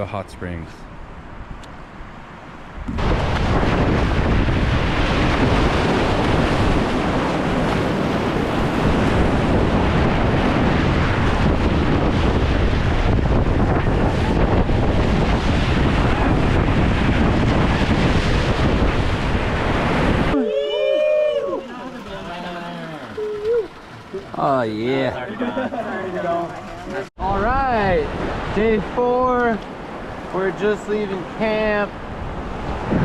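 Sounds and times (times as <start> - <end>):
wind buffeting microphone: 2.7 - 30.4, 31.2 - 33.0.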